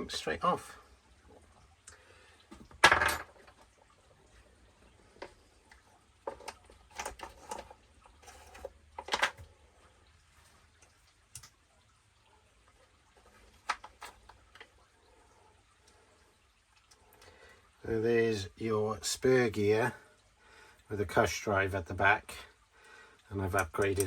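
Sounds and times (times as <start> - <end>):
small parts and tools clicking: 5.2 - 9.5, 11.3 - 11.6, 23.6 - 24.0.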